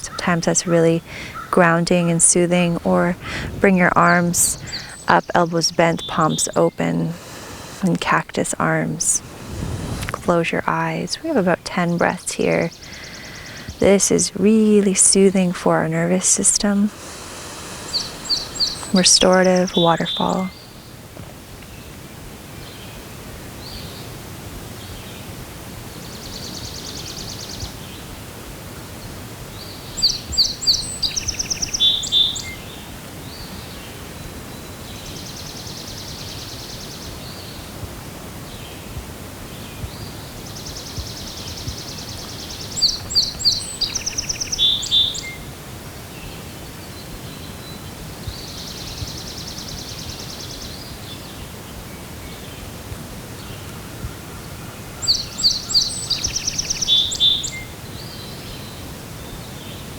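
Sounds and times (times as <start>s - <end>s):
songbirds singing: 0.0s - 21.0s, 21.6s - 59.9s
outdoor hiss: 0.0s - 59.9s
buzzy high bird trills: 10.2s - 20.6s.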